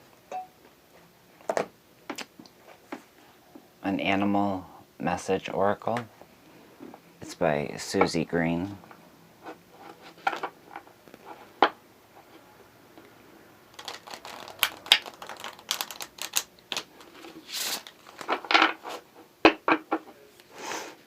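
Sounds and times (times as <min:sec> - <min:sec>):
cards shuffling and riffling: 0:13.7 - 0:19.0.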